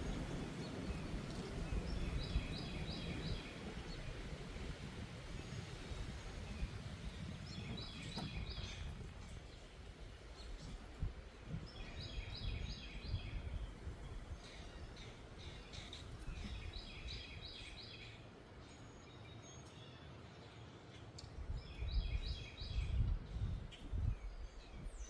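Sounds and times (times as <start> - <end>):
wind gusting on microphone: 0.0 - 18.0, 21.4 - 25.0
songbird singing: 0.0 - 25.0.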